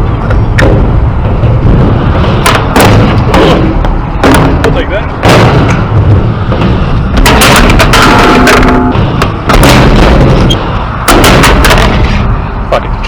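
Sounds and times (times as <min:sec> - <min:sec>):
skateboard wheels rolling on concrete: 0:00.0 - 0:09.5.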